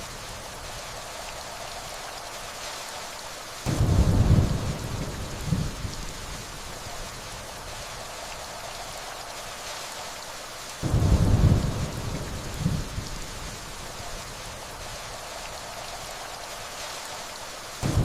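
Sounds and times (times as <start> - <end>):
steady rainfall: 0.0 - 18.0
distant thunder rumble: 3.7 - 6.2, 10.8 - 14.0.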